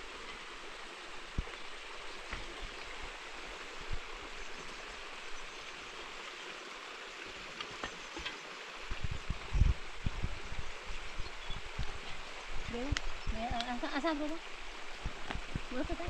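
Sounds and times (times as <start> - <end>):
running water rushing: 0.0 - 16.0.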